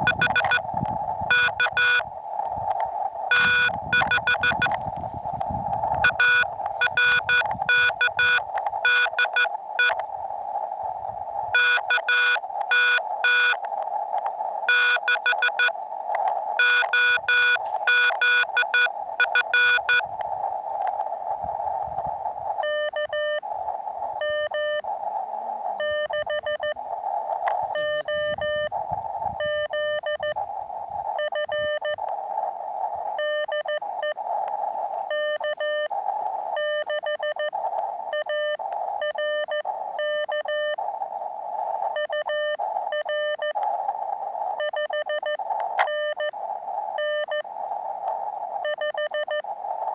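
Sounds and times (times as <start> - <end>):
morse code beeps: 0.0 - 2.1, 3.3 - 4.9, 5.8 - 10.0, 11.5 - 13.6, 14.7 - 15.8, 16.6 - 20.1, 22.6 - 23.4, 24.2 - 24.8, 25.8 - 26.8, 27.7 - 28.7, 29.4 - 30.4, 31.2 - 32.0, 33.2 - 34.2, 35.1 - 35.9, 36.6 - 40.8, 42.0 - 43.6, 44.6 - 46.3, 47.0 - 47.4, 48.6 - 49.4
radio receiver hiss: 0.0 - 49.9.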